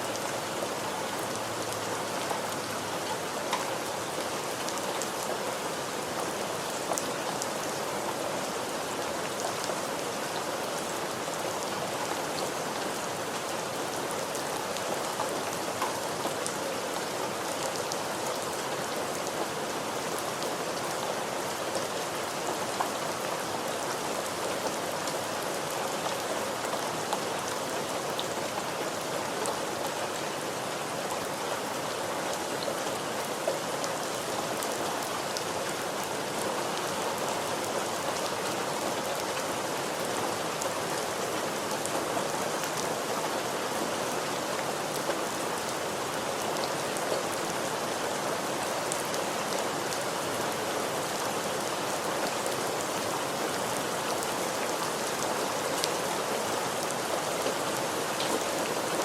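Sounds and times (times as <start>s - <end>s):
rain pattering on a surface: 0.1s - 59.0s.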